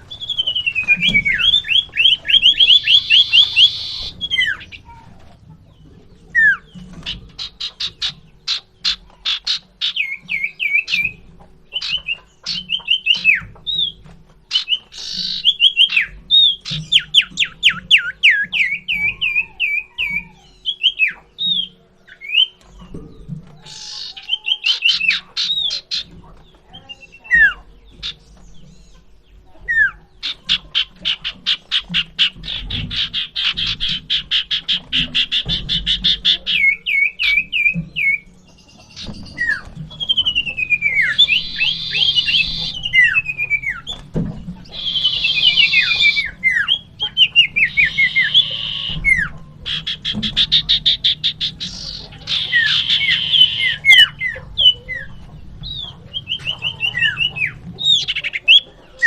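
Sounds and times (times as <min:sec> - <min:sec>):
bird rattling call: 0:00.0 - 0:05.0, 0:11.8 - 0:20.6, 0:30.2 - 0:38.2, 0:38.8 - 0:58.6
bird downslurred whistles: 0:44.7 - 0:49.3.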